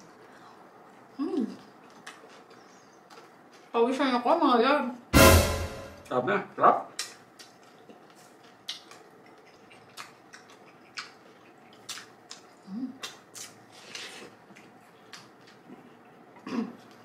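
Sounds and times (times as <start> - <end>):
crisp eating crunches: 1.0 - 3.8, 6.9 - 17.0.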